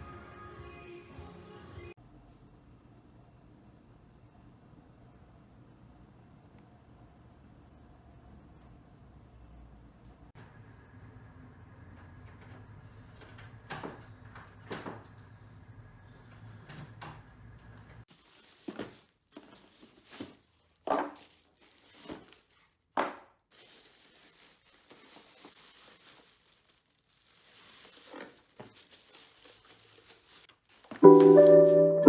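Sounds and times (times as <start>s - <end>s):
rustling and crinkling handling: 18.0s - 32.0s
piano music: 31.0s - 32.0s.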